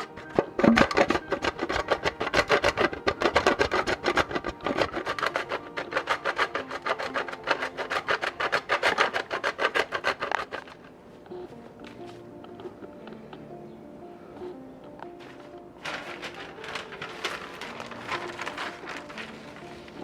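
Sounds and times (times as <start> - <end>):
rapid rhythmic scraping strokes: 0.0 - 10.9, 15.8 - 20.0
soft background music: 0.0 - 20.0.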